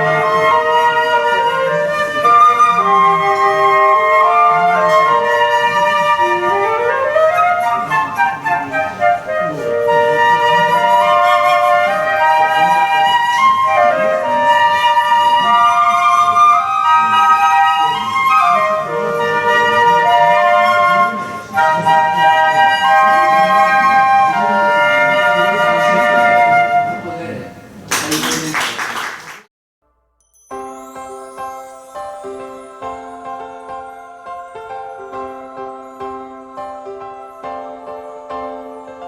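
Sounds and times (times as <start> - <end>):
flute trio playing in harmony: 0.0 - 27.5.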